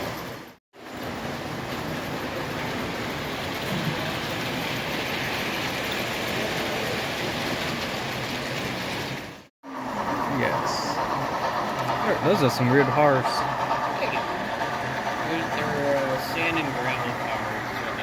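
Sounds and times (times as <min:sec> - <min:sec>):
model train rolling on track: 0:00.0 - 0:18.0.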